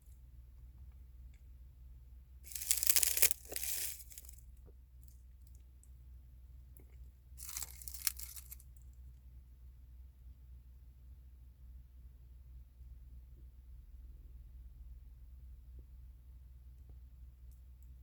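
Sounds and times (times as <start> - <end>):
crunching from eating: 2.5 - 4.4, 6.8 - 8.8.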